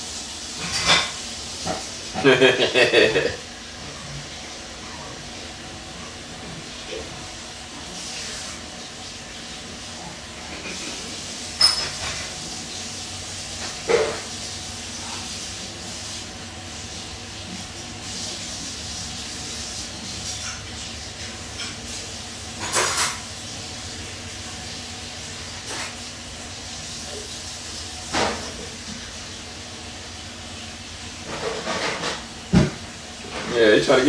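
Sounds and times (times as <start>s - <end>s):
microphone hiss: 0.0s - 6.0s.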